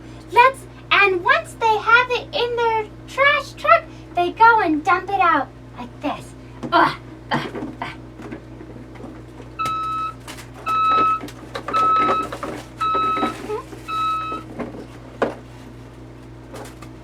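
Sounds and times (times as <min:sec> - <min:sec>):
toy truck electronic beeps: 0:09.6 - 0:14.4.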